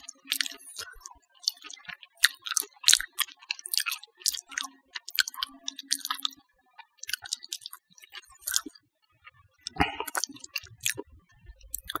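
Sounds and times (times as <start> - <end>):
wet chewing mouth clicks: 0.0 - 6.4, 7.0 - 8.8, 9.6 - 11.0, 11.6 - 12.0.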